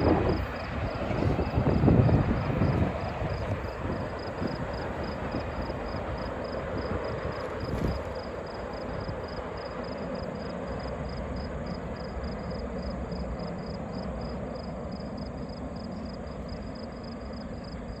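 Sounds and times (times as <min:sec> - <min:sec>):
freight train cars rolling: 0:00.0 - 0:13.4.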